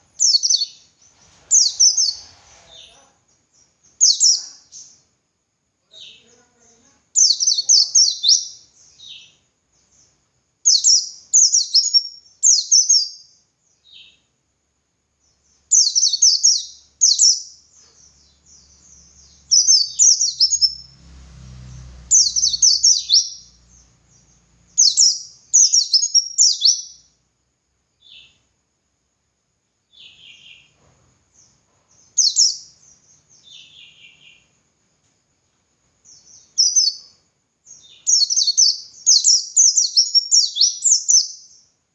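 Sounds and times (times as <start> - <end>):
bird singing high falling chirps: 0.1 - 5.0, 7.2 - 14.3, 15.3 - 21.0, 22.0 - 27.2, 31.4 - 34.5, 36.0 - 41.7.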